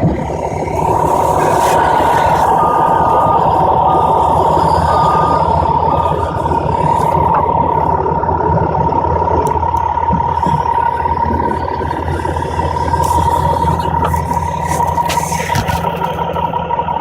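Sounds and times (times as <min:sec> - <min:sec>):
machine whining and humming: 0:00.0 - 0:17.0
short beeps: 0:00.8 - 0:08.0.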